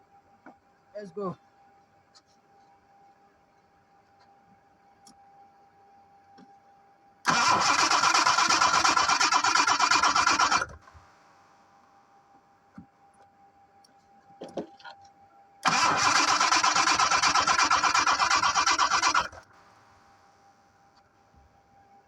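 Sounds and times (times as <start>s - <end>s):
engine cranking by starter motor: 7.3s - 10.8s, 15.6s - 19.5s
faint steady whine: 9.0s - 22.0s.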